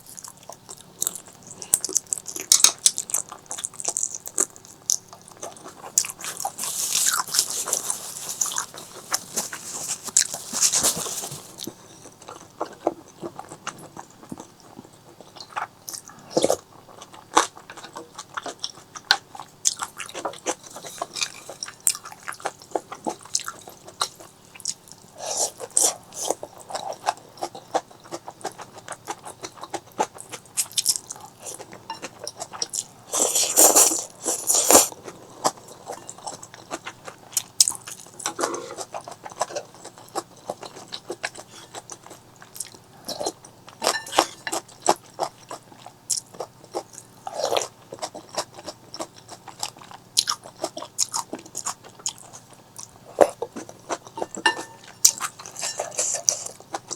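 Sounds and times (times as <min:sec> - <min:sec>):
chewing and crunching: 0:00.0 - 0:56.9.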